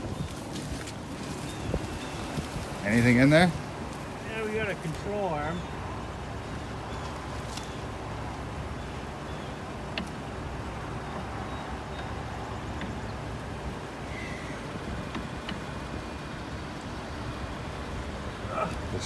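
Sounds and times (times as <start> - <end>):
vehicle engine idling: 0.0 - 19.0
light clicks and knocks: 11.1 - 13.5.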